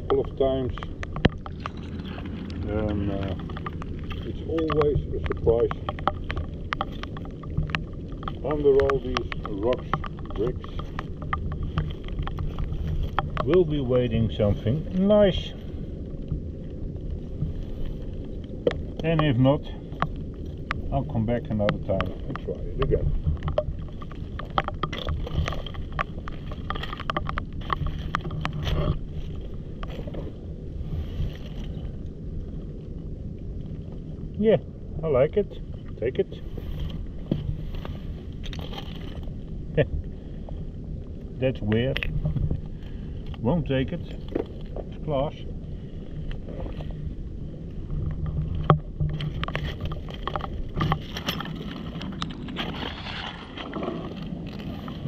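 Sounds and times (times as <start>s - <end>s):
sharp clicks and knocks: 0.0s - 15.0s, 18.4s - 30.3s, 47.9s - 52.8s
low rumble: 0.0s - 55.0s
wind buffeting microphone: 0.0s - 55.0s.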